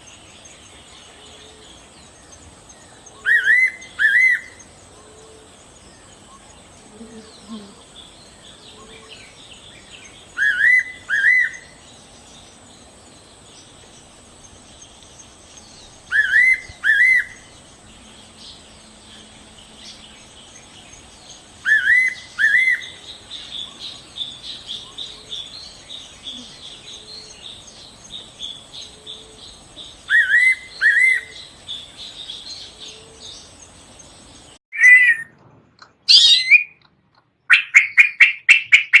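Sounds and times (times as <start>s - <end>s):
songbird whistled notes: 10.4s - 11.8s, 16.1s - 17.5s, 21.6s - 23.0s, 34.7s - 35.3s, 36.1s - 36.8s
high bird twittering: 34.7s - 35.3s, 35.9s - 39.0s.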